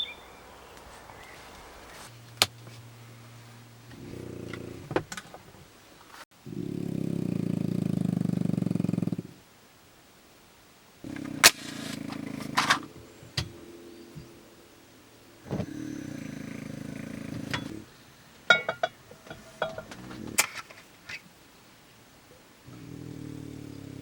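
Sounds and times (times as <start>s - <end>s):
bulldog snoring: 6.5s - 9.4s, 15.5s - 17.9s, 22.7s - 24.0s.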